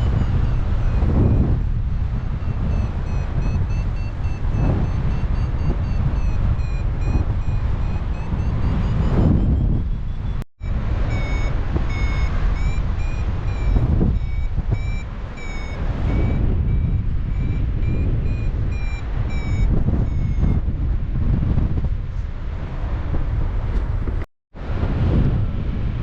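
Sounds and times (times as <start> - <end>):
variometer beeping: 0.0 - 20.8
wind rush on microphone: 0.0 - 26.0.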